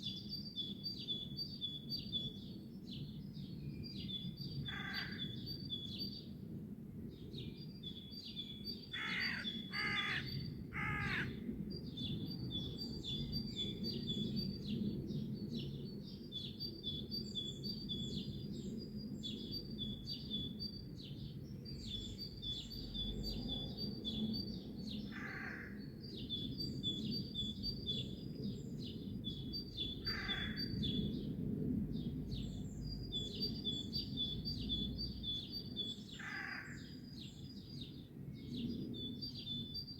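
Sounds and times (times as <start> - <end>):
small birds chirping: 7.2 - 39.9
bird giving harsh calls: 9.0 - 11.3.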